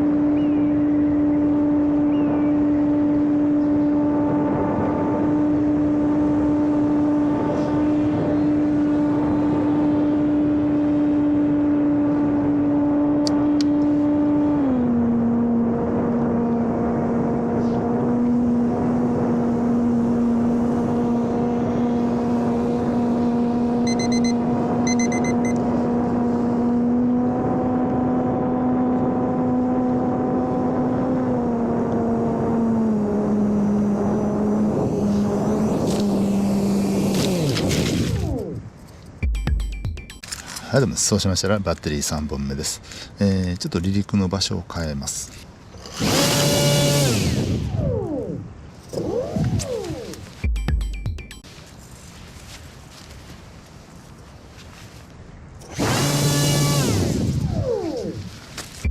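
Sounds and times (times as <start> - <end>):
electric motor and propeller whine: 0.0 - 38.8, 45.5 - 50.5, 55.6 - 58.9
short high beeps: 23.9 - 25.6, 39.2 - 40.5, 50.4 - 51.5.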